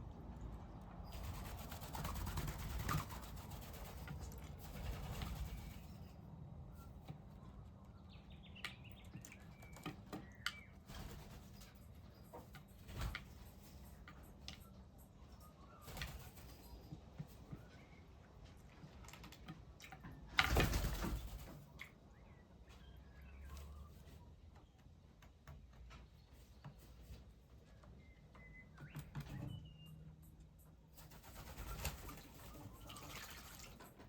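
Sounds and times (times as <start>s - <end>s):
bird wings flapping: 1.1s - 6.0s, 15.9s - 16.8s, 20.4s - 21.7s, 31.0s - 33.9s
faint bird chirps: 5.4s - 18.5s, 21.3s - 24.8s, 26.0s - 33.8s.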